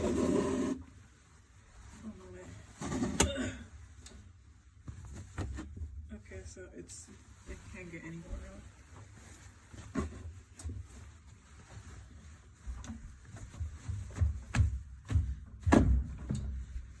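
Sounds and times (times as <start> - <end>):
knocks and thumps on washing machine: 13.9 - 16.7.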